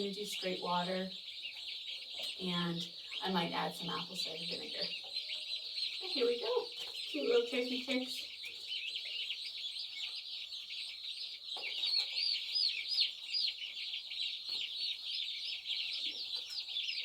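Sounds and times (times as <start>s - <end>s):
turkey poults peeping: 0.0s - 17.0s.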